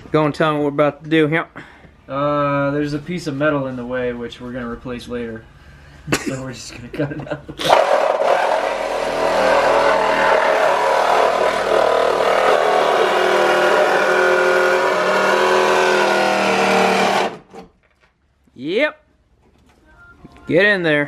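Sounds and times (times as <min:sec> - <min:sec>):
reciprocating saw cutting sheet metal: 0:07.6 - 0:17.6.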